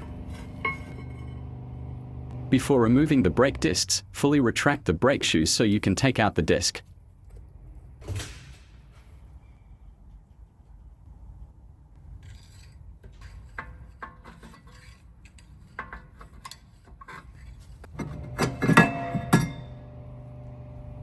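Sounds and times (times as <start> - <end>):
metal clicking and scraping: 0.0 - 1.4, 12.2 - 19.6
brake disc clanking and ringing: 0.0 - 2.5, 17.9 - 20.0.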